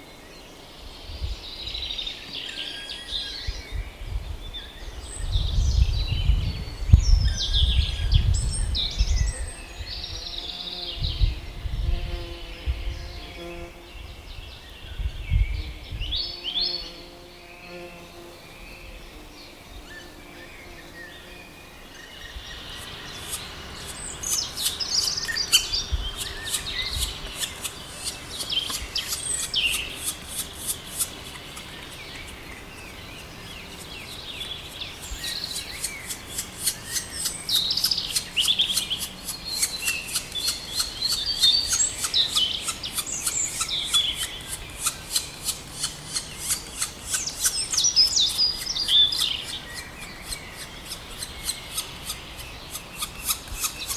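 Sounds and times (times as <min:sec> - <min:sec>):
bird chirps: 0:19.8 - 0:53.9.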